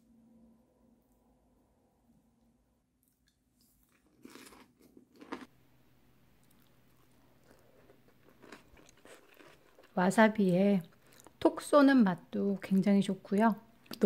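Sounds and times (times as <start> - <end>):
person crunching food: 3.0 - 5.5, 6.4 - 10.0.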